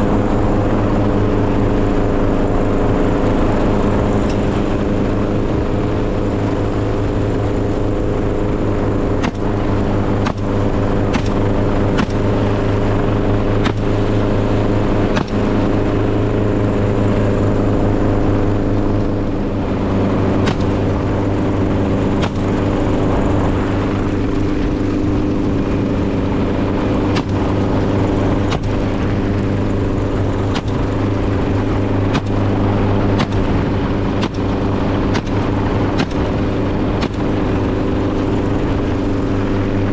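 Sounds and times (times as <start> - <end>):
engine drone: 0.0 - 39.9
sharp clicks or knocks: 10.2 - 12.3, 13.6 - 14.0, 15.0 - 15.7, 20.4 - 20.8, 30.5 - 31.0, 32.1 - 32.4, 33.0 - 33.6, 34.2 - 35.4, 36.0 - 36.4.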